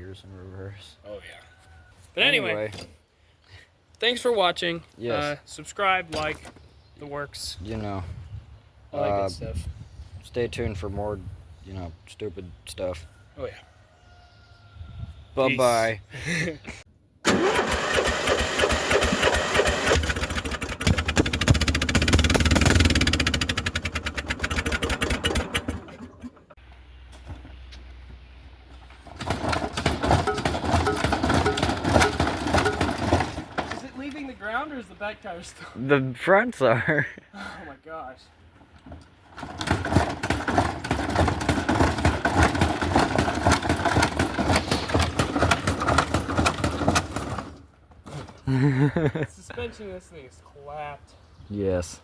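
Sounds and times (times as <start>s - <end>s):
atv engine running: 18.2s - 26.5s, 29.1s - 33.6s, 39.6s - 47.3s.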